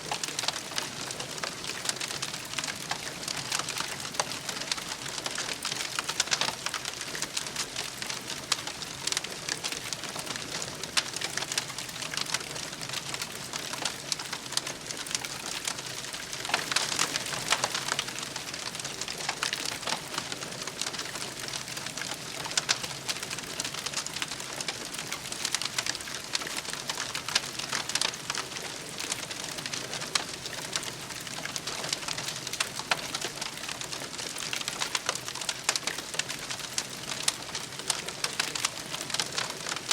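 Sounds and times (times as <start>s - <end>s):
campfire crackling: 0.1s - 39.9s.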